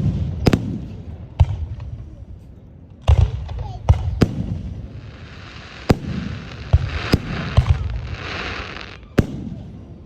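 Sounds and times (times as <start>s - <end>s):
firework shells booming: 4.0s - 9.6s
firework crackling: 4.1s - 9.5s.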